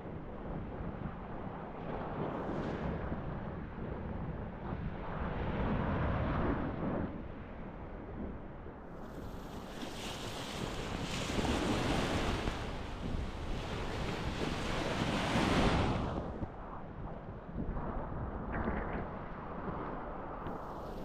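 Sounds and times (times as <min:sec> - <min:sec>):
wind rumbling on microphone: 0:00.0 - 0:21.0
sea waves washing onto beach: 0:09.0 - 0:16.3.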